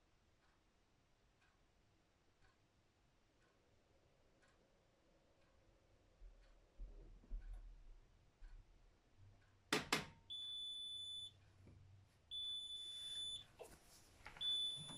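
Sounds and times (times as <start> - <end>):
washing machine beeps: 10.3 - 11.4, 12.3 - 13.5, 14.4 - 14.9.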